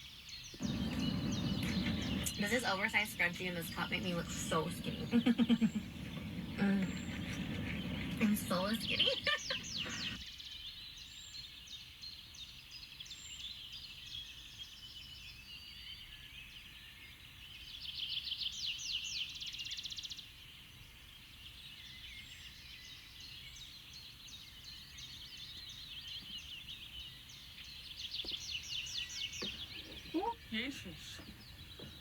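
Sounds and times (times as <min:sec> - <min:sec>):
songbirds chirping and singing: 0:00.5 - 0:10.2, 0:26.2 - 0:32.0
bird rapid trill: 0:00.6 - 0:10.2.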